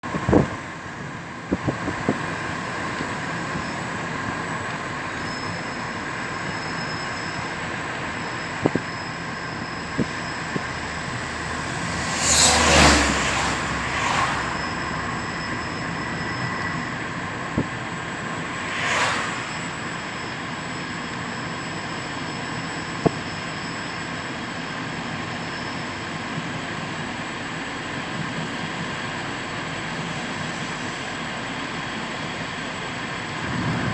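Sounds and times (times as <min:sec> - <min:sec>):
train running on rails: 0:00.0 - 0:33.9
faint high wheel squeal: 0:00.6 - 0:33.9
whooshes: 0:11.2 - 0:15.0, 0:18.3 - 0:20.6.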